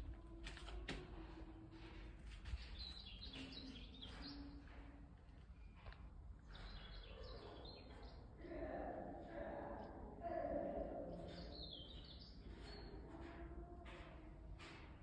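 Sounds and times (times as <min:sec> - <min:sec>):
small birds chirping: 0:02.5 - 0:05.0, 0:06.4 - 0:09.4, 0:10.7 - 0:13.5.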